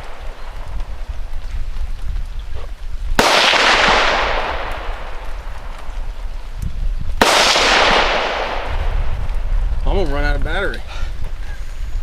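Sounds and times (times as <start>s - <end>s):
rifle shots with echo: 3.2s - 5.8s, 7.2s - 9.1s.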